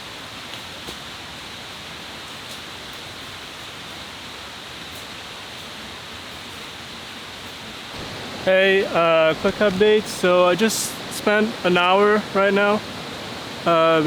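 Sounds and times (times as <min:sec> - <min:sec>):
rushing water: 0:00.0 - 0:14.0.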